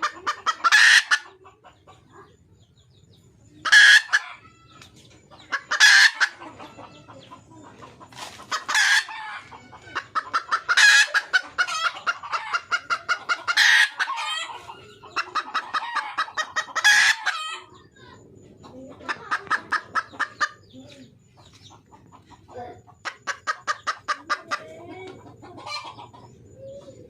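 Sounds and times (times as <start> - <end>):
hen clucking: 0.0 - 27.0.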